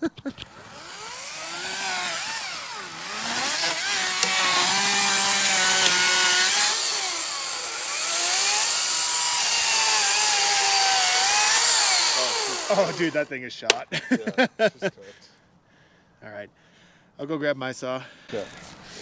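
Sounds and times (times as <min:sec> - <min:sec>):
chainsaw cutting wood: 0:00.1 - 0:13.8, 0:18.3 - 0:19.0.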